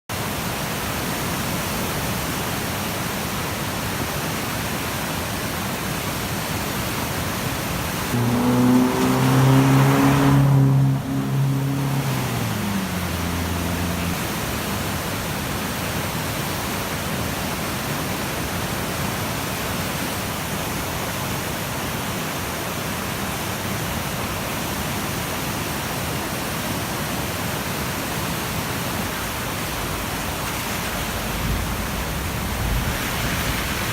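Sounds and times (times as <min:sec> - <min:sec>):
river rushing: 0:00.1 - 0:33.9
vehicle engine passing: 0:08.1 - 0:14.4, 0:29.1 - 0:33.9.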